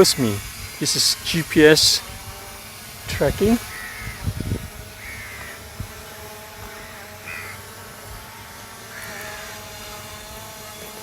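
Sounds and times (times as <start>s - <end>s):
drone hovering hum: 0.0s - 11.0s
bird calls: 3.4s - 4.3s, 5.0s - 5.6s, 6.7s - 7.7s.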